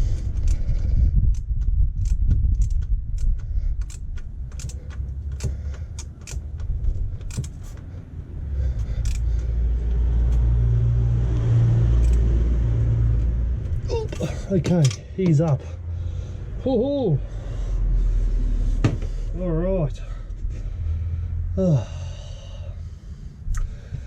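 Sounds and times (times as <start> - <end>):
ratchet clicking: 0.0 - 7.9, 8.8 - 9.4, 12.0 - 12.3
low rumble: 0.0 - 24.0.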